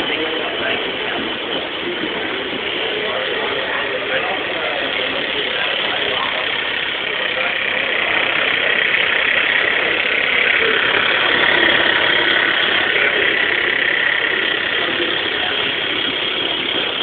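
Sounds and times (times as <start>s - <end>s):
mechanical clatter of gears: 4.0s - 17.0s.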